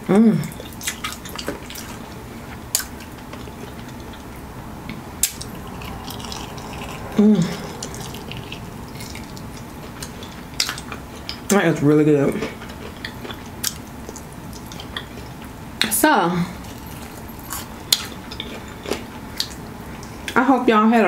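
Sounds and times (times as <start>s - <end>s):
close-up chewing: 0.5s - 15.6s
person humming: 5.5s - 8.8s.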